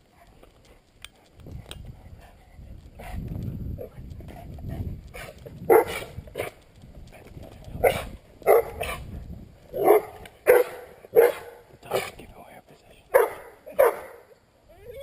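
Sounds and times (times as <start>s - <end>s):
dog barking: 5.7s - 6.5s, 7.8s - 9.0s, 9.8s - 12.2s, 13.1s - 14.4s.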